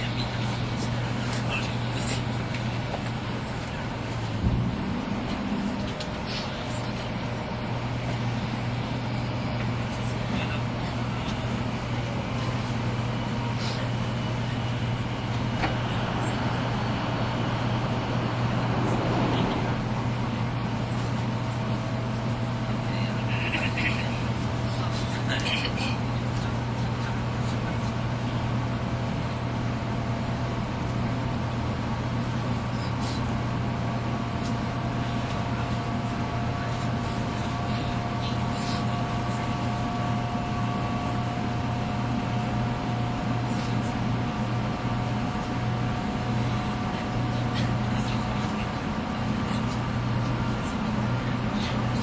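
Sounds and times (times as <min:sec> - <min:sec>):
train cabin low hum: 0:00.0 - 0:52.0.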